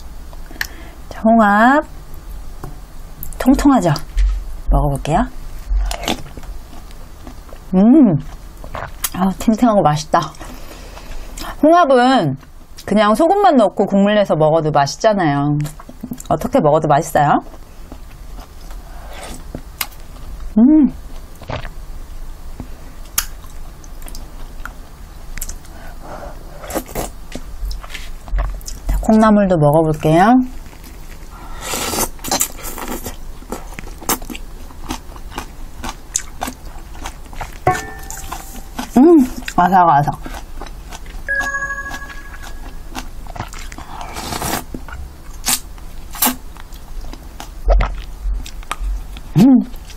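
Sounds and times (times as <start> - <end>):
close-up chewing: 5.8 - 9.2, 30.5 - 37.6, 38.6 - 41.3, 42.4 - 49.9.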